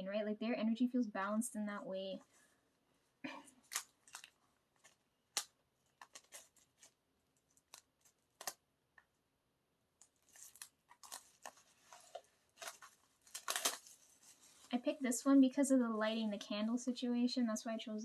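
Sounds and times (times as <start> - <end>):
paper and cardboard rustling: 10.1 - 15.0.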